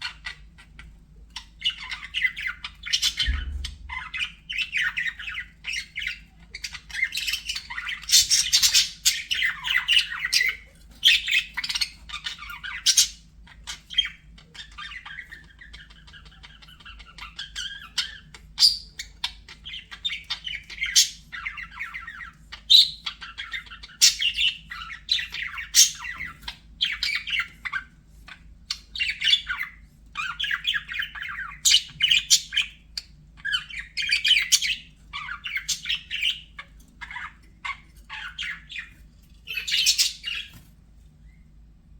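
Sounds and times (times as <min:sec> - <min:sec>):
budgerigars chattering and warbling: 0:00.0 - 0:40.6.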